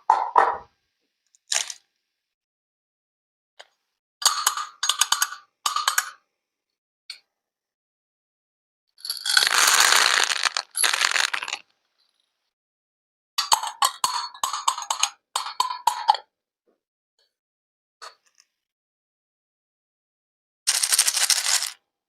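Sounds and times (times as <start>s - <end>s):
small hard objects clinking: 9.1s - 11.6s, 20.7s - 21.8s.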